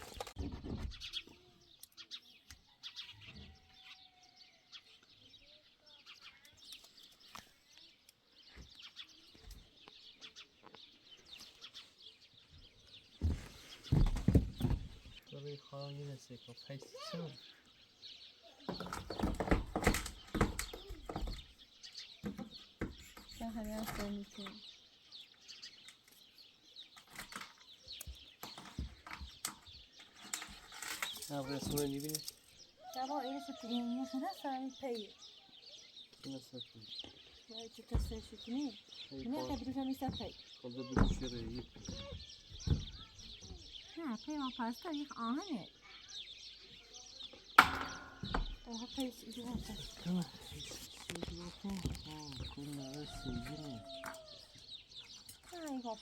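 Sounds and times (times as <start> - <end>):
birds chirping: 0.0 - 56.0
soft knocks: 13.2 - 15.1, 41.0 - 43.7, 47.6 - 50.3.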